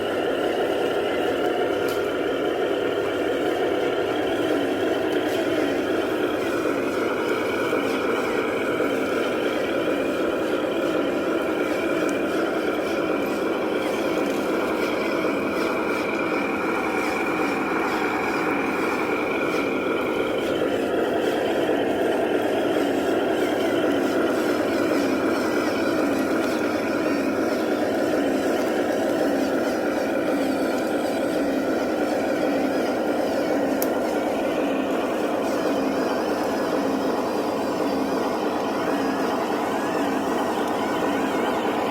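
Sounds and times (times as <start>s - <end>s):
toy truck motor whirring: 0.0s - 41.9s.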